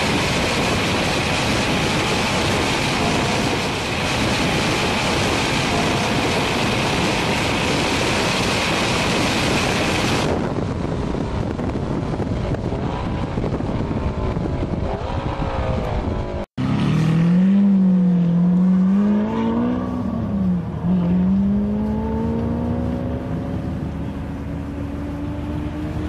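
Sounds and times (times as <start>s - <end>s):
car engine at speed: 0.0s - 26.0s
wind rush: 0.0s - 26.0s
sports car engine revving: 14.2s - 26.0s.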